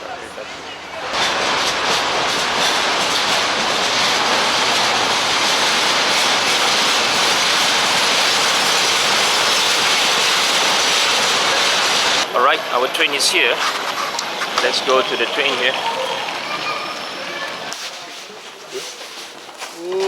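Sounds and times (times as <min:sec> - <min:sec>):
train wheels on rails: 0:00.3 - 0:20.0.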